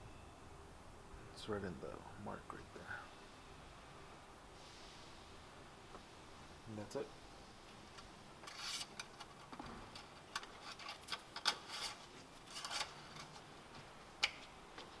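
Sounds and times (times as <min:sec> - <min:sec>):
scraping rubs: 0:08.4 - 0:09.3, 0:10.0 - 0:13.5.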